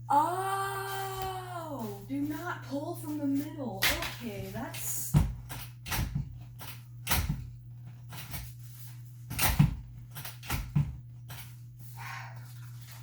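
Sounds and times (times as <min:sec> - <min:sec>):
steady low hum: 0:00.0 - 0:13.0
knocks and clacks of playpen rails: 0:01.0 - 0:08.5, 0:09.3 - 0:11.6.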